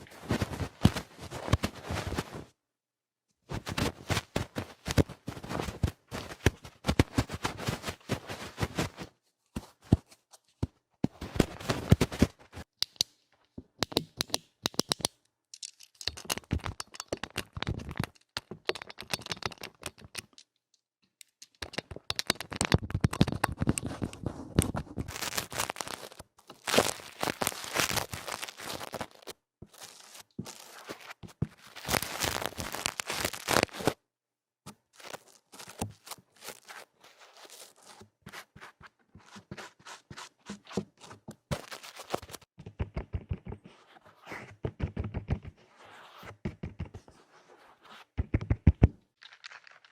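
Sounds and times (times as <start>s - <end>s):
scratching and crackling rubs: 0.0s - 2.5s, 3.5s - 10.2s, 21.2s - 34.0s, 34.7s - 49.9s.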